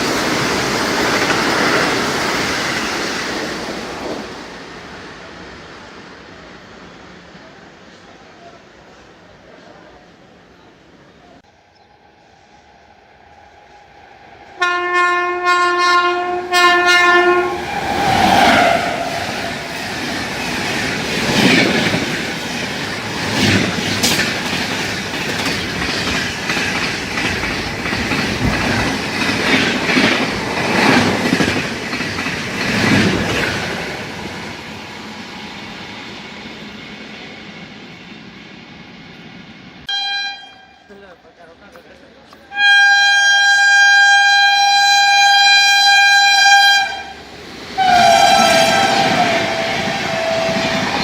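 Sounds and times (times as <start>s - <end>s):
train horn blasts: 14.6s - 19.6s, 39.9s - 40.9s, 42.5s - 47.2s, 47.8s - 51.0s
train wheels clattering over rail joints: 19.5s - 33.8s.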